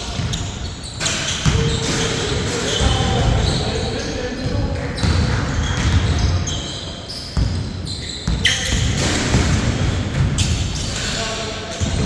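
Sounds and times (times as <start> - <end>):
basketball bouncing on court: 0.0 - 3.8, 4.4 - 10.9
short high squeaks: 0.3 - 3.6.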